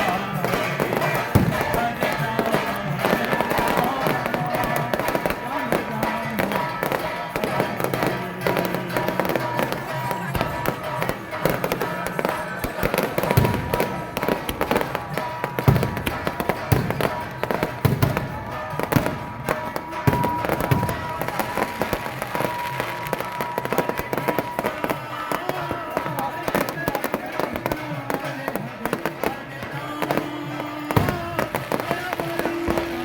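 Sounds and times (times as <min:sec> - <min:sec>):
music: 0:00.0 - 0:33.0
voices: 0:00.0 - 0:33.0.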